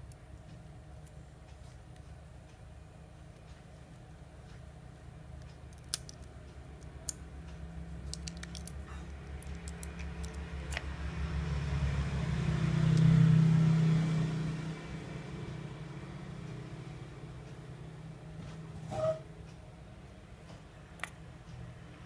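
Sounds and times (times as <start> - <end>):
low engine hum of passing vehicle: 6.5 - 22.0.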